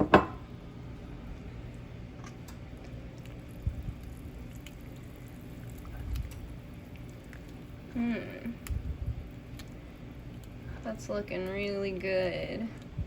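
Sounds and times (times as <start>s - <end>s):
liquid pouring into soup: 2.7s - 7.8s.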